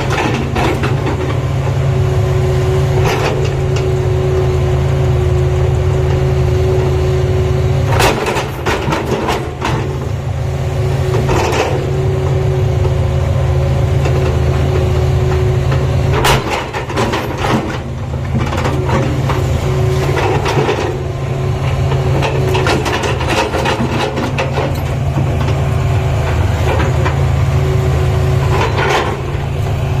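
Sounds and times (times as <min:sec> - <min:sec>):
excavator diesel engine running: 0:00.0 - 0:30.0
knocks and clatter: 0:07.9 - 0:09.9, 0:14.0 - 0:21.0, 0:22.0 - 0:25.6.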